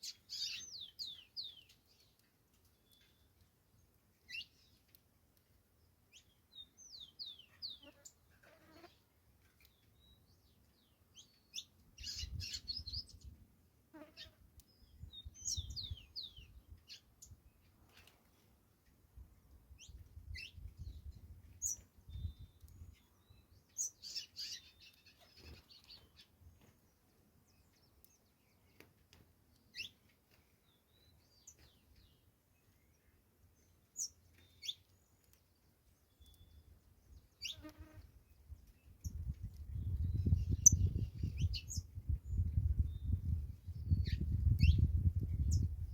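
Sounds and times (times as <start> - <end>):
finch singing chirps and trills: 0.0 - 2.2, 9.6 - 13.4, 14.7 - 17.7, 19.8 - 26.7, 29.6 - 37.7, 38.5 - 45.9.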